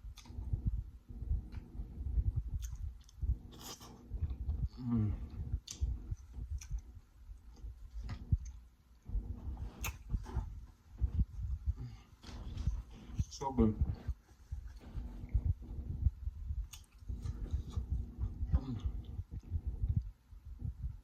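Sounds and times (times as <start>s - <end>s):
chewing food with mouth clicks: 1.4s - 10.5s, 16.5s - 20.1s.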